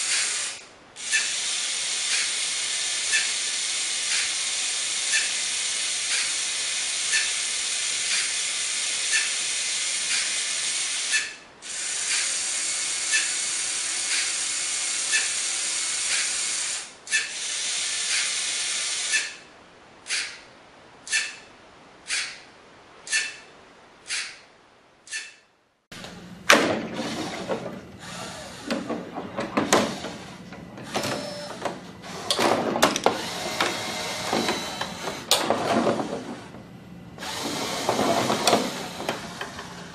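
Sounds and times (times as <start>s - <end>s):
toy motors and gears hissing: 0.0s - 19.5s, 20.1s - 20.4s, 21.1s - 21.4s, 23.1s - 23.4s, 33.1s - 35.4s, 37.2s - 39.9s
motor hum: 25.9s - 39.9s
pinball flippers clacking: 28.6s - 36.6s, 37.4s - 39.9s.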